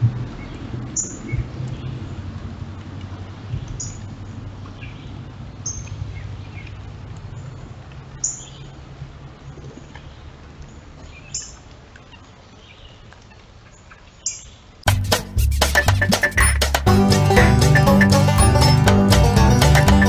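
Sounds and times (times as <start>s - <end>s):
banjo tune: 14.9s - 20.0s.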